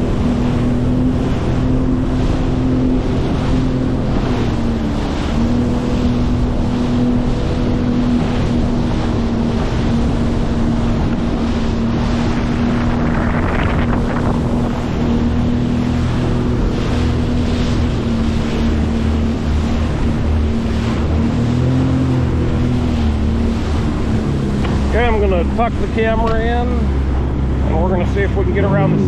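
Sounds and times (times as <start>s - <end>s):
motorboat engine humming: 0.0s - 29.0s
water splashing against hull: 0.0s - 29.0s
wind buffeting microphone: 0.0s - 29.0s.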